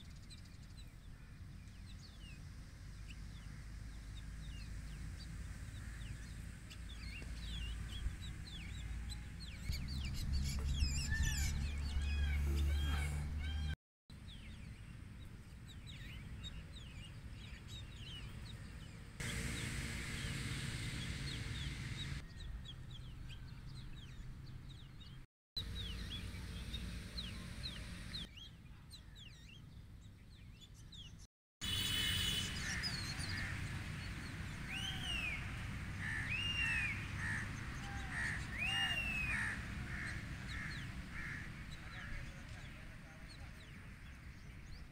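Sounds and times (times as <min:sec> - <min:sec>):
birds chirping: 0:00.0 - 0:44.9
low steady rumble: 0:18.5 - 0:24.0.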